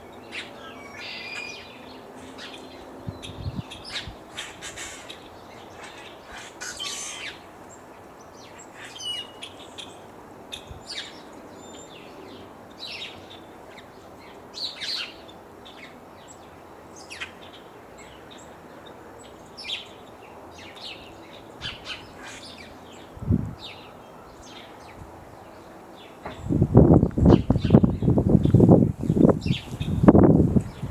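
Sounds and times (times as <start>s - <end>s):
birds chirping: 0.0s - 30.9s.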